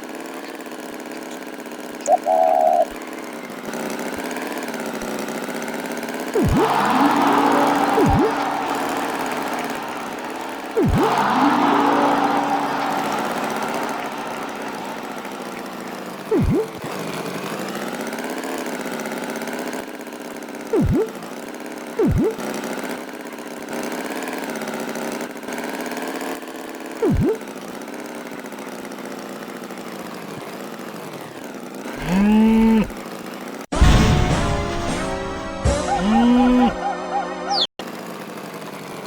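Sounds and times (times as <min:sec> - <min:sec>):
engine running steadily: 0:00.0 - 0:34.0
short swooping blips: 0:06.4 - 0:16.9, 0:20.7 - 0:21.2, 0:22.0 - 0:22.4, 0:27.0 - 0:27.4
cow mooing: 0:32.0 - 0:32.9.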